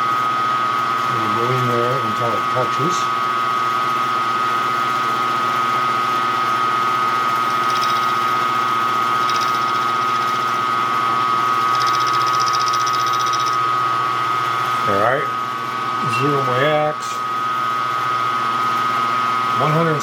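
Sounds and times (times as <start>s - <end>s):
milling machine whining: 6.8s - 20.0s.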